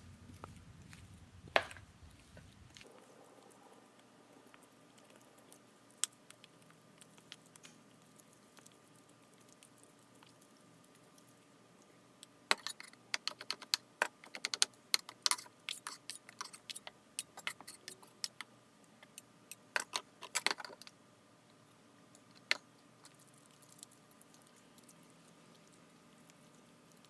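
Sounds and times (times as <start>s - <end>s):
spatula clicking mashing bananas: 12.5s - 20.8s.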